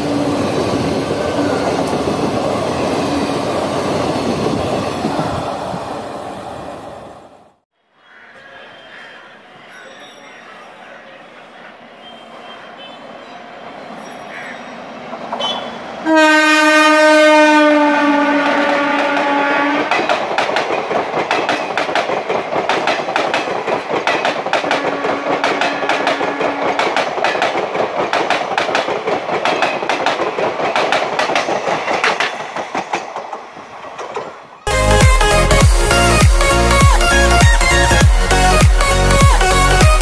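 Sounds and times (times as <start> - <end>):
locomotive horn: 15.4 - 20.0, 24.7 - 26.8
train wheels clickety-clack: 18.4 - 34.5.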